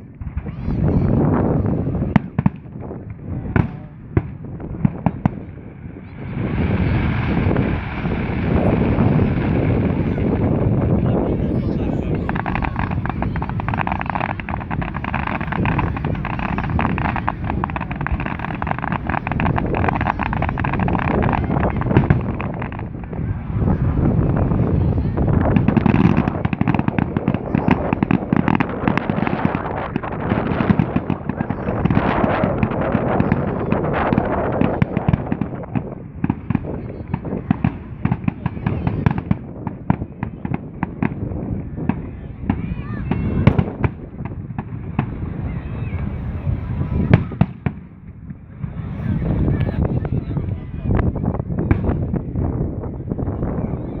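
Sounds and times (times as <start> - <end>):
fireworks crackling: 0.0 - 53.6
wind buffeting microphone: 0.0 - 54.0
fireworks shells bursting: 11.5 - 21.3.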